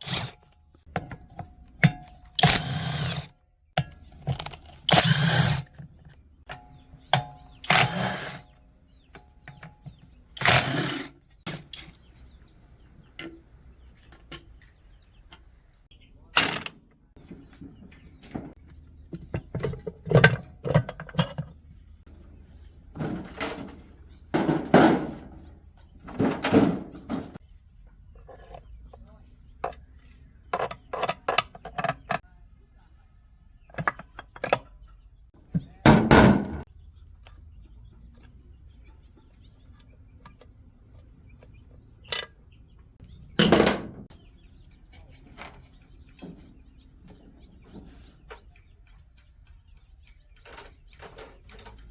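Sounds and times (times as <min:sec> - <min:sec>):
crickets chirring: 0:00.1 - 0:51.9.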